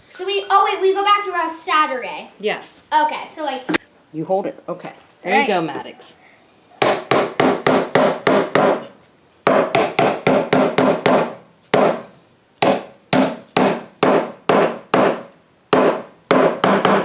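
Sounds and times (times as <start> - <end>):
hammer striking a nail: 6.8 - 8.9, 9.5 - 17.0.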